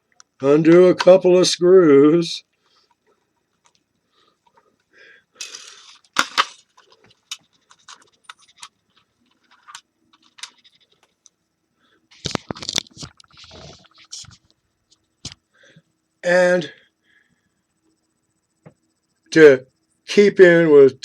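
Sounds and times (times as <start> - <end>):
clicks of small parts handled: 5.4 - 11.4, 12.2 - 15.4.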